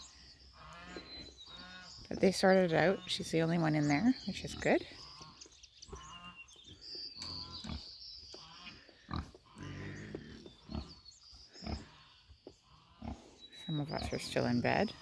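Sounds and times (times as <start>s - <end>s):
pig grunting: 9.0s - 11.0s, 11.6s - 12.1s.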